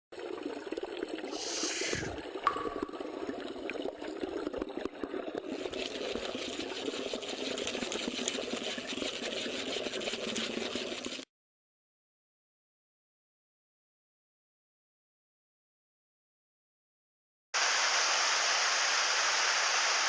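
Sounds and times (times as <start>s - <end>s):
stream water running: 0.1s - 11.2s.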